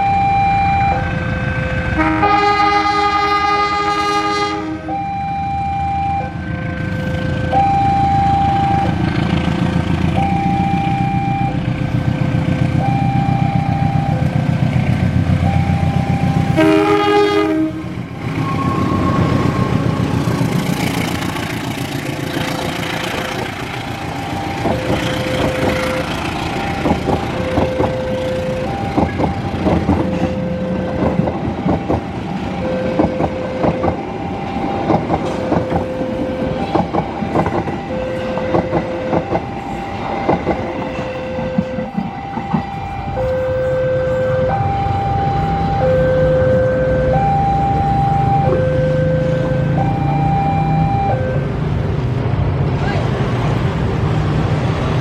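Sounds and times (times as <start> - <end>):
level crossing alarm beeping: 0.0 - 2.8, 3.4 - 51.9
train engine rumble: 0.0 - 55.0
train horn: 1.5 - 5.1, 16.4 - 20.2
train wheels clicking on rails: 8.6 - 43.5.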